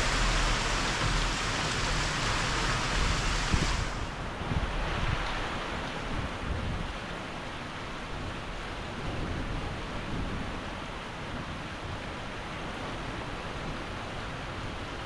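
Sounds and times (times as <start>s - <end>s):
low uneven rumble: 0.0s - 4.8s
heavy rain falling: 0.0s - 6.1s.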